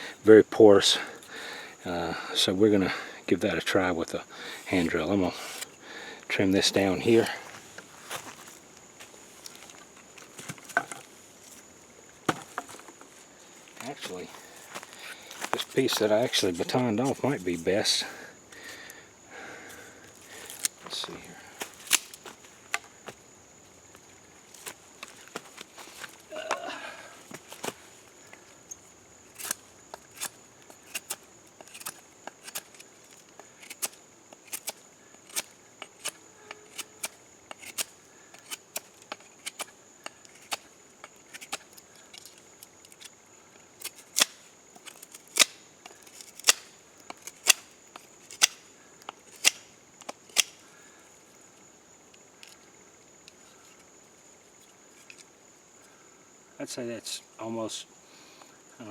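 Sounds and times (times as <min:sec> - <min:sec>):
insect trill: 0:00.0 - 0:58.9
knife cutting vine: 0:21.6 - 0:22.3, 0:29.3 - 0:32.9, 0:33.6 - 0:39.7, 0:43.8 - 0:48.6, 0:49.4 - 0:50.6.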